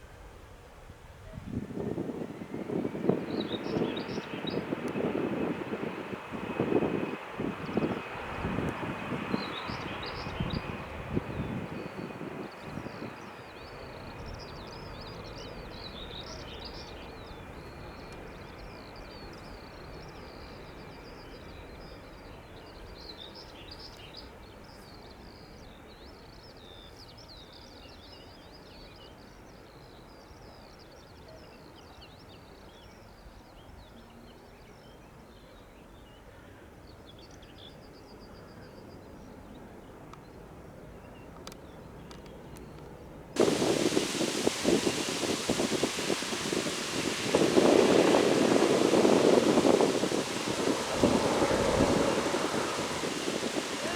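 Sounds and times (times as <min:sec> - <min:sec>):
distant aircraft engines rumbling: 0:01.6 - 0:20.4, 0:43.4 - 0:53.9
loud rush of noise: 0:43.4 - 0:53.9
small birds chirping: 0:43.4 - 0:53.9.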